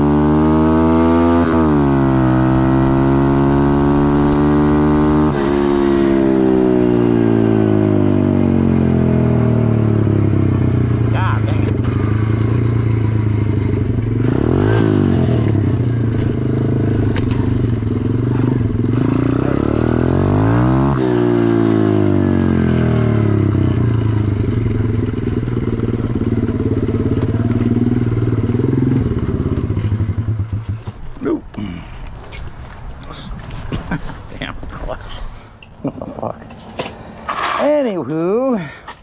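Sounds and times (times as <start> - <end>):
pit bike engine revving: 0.0 - 30.9.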